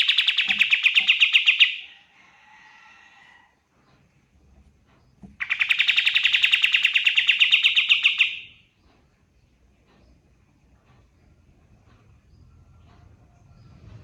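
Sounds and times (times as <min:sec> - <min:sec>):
bird rattling trill: 0:00.0 - 0:01.9, 0:05.4 - 0:08.5.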